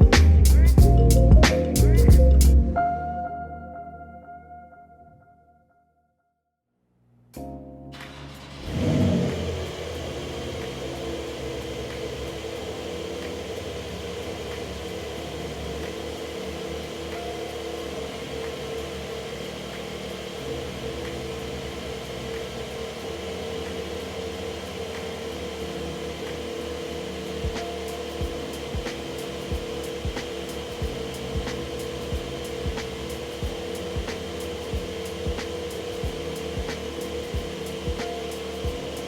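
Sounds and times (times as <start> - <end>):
car engine idling: 8.0 - 39.0.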